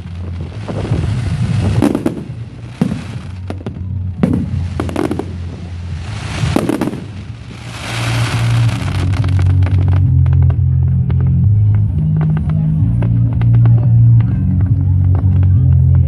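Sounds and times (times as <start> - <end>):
fireworks bangs with crackling: 0.0 - 16.0.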